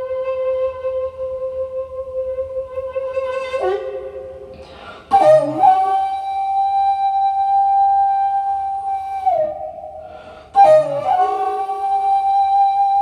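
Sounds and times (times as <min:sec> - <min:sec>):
bamboo flute solo: 0:00.0 - 0:13.0
breath noise: 0:04.5 - 0:05.2, 0:10.0 - 0:10.6.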